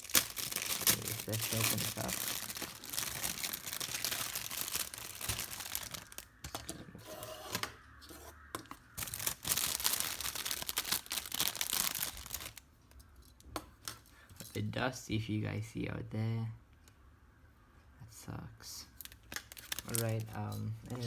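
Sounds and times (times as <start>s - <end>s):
packaging crinkling and tearing: 0.0s - 6.7s, 8.9s - 12.6s, 19.0s - 21.0s.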